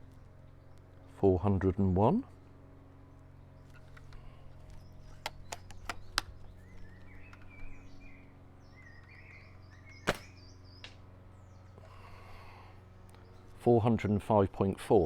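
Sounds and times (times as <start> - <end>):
light handling clicks: 3.6 - 7.8
airsoft pistol shot: 10.0 - 10.5.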